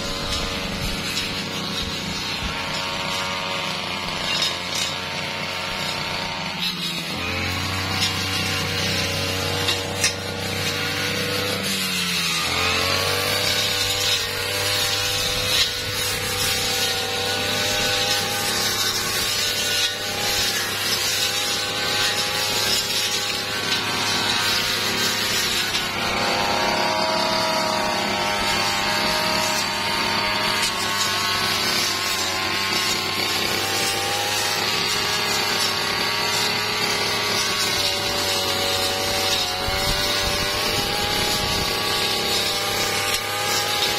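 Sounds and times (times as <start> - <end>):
brush cutter cutting branches: 0.0 - 43.9.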